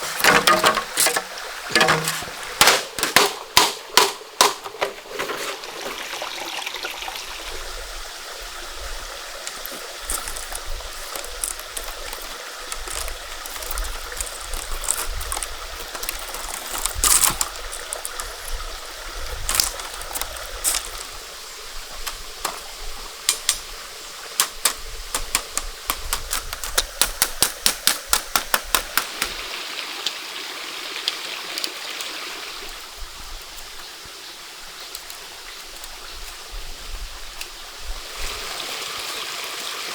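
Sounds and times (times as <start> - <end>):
flowing stream: 0.0 - 39.9
sharp clicks or knocks: 0.2 - 5.0, 24.4 - 29.4.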